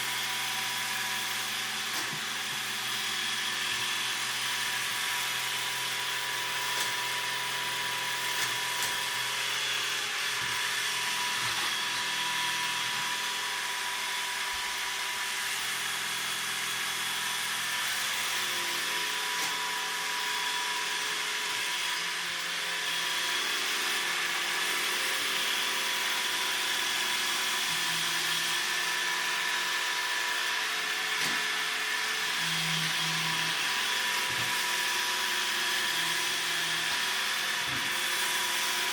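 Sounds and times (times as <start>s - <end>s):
robot vacuum motor whirring: 0.0s - 38.9s.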